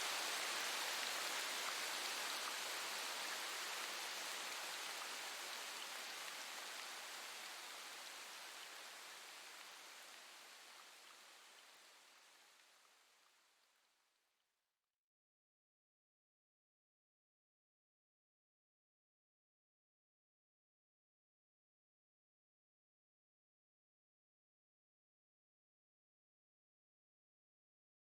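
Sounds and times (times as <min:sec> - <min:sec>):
steady rain: 0:00.0 - 0:13.7.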